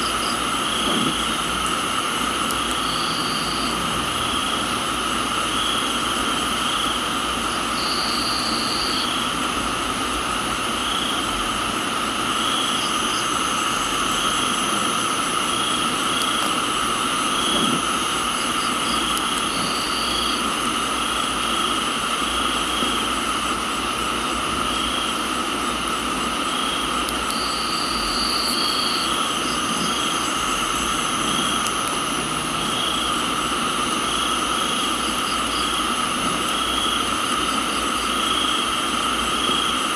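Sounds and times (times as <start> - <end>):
crickets trilling: 0.0 - 39.9
pulsing insect call: 0.0 - 39.9
steady rain hiss: 0.0 - 39.9
high insect buzz: 2.5 - 4.6, 26.5 - 38.7.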